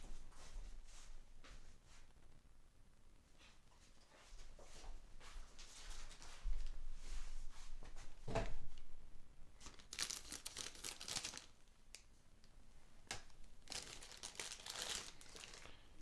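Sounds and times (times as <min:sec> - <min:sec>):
packaging crinkling and tearing: 0:09.6 - 0:12.0, 0:13.1 - 0:15.9.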